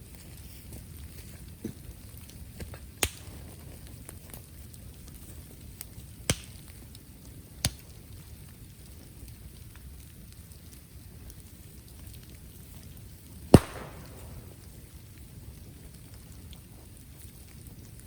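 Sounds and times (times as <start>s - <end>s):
low hiss of fire: 0.0s - 18.0s
fire crackling: 0.1s - 18.0s
bamboo bursting with loud cracks: 3.0s - 3.4s, 6.3s - 6.6s, 13.5s - 14.7s.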